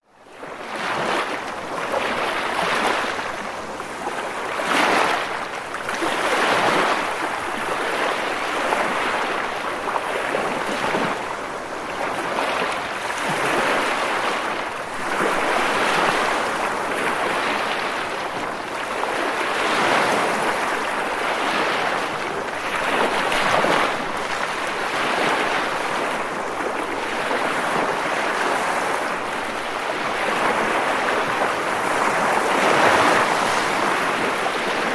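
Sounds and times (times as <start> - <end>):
waves crashing on rocks: 0.8 - 34.9.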